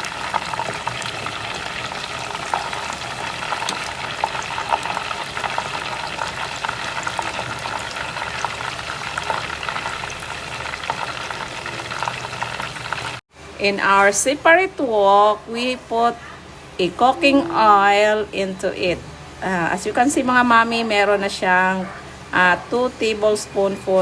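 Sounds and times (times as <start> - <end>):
chicken deep-frying in oil: 0.0 - 13.2
oil crackles and pops: 0.0 - 13.2.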